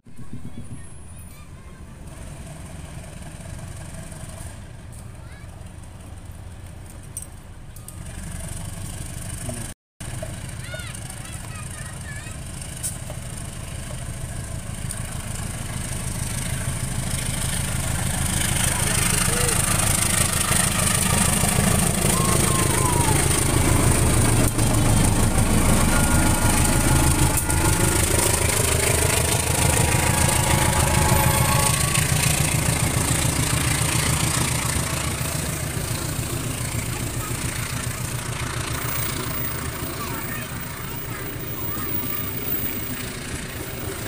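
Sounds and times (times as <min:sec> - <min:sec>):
locomotive engine drone: 0:00.1 - 0:44.0
train wheels rolling on rails: 0:12.3 - 0:44.0.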